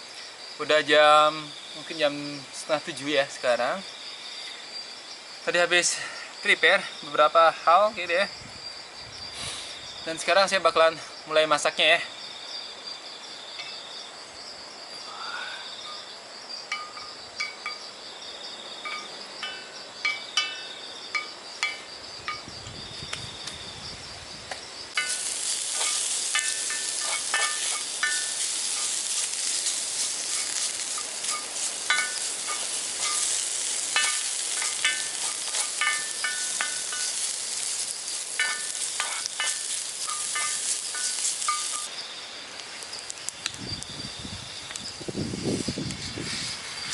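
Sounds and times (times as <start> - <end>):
insects trilling: 0.0 - 46.9
vegetables sizzling in pan: 24.7 - 42.0
utensil clinking on pan: 25.0 - 29.0, 30.3 - 37.2, 38.4 - 41.9.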